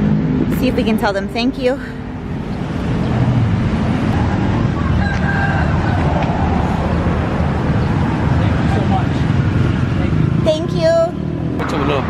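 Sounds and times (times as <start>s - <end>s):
steady outdoor rumble: 0.0s - 12.0s
rooster crowing: 4.2s - 6.6s.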